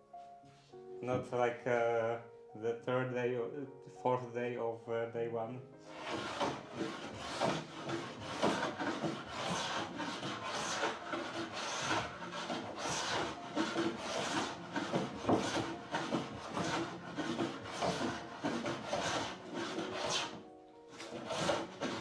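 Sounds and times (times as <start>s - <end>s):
scraping tool on wood: 5.9s - 22.0s.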